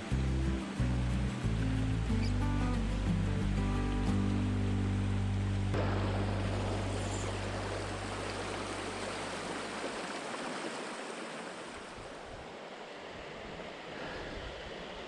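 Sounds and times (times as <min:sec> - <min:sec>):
low background music: 0:00.0 - 0:09.0
stream splashing over rocks: 0:05.8 - 0:12.8.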